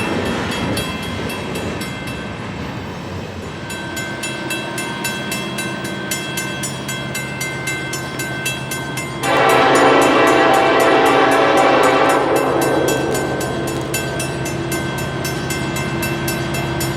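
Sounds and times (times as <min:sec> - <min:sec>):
crossing bell ringing: 0:00.0 - 0:16.9
train passing: 0:00.0 - 0:16.9
locomotive air horn: 0:09.2 - 0:14.1.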